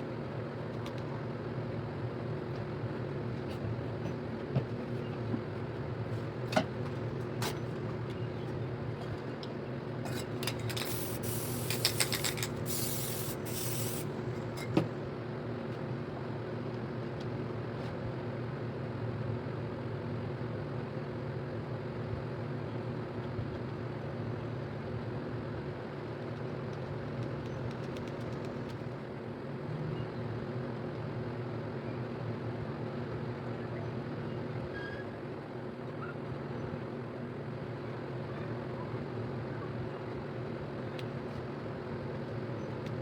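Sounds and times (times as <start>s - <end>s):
steady low hum: 0.0s - 34.6s
spray paint can hissing: 10.6s - 14.1s.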